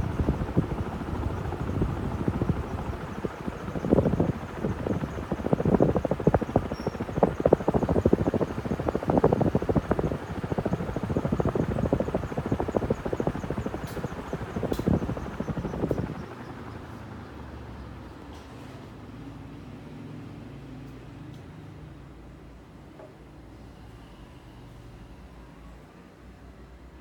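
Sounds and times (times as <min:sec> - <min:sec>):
ceiling fan chopping pulse: 0:00.0 - 0:17.4.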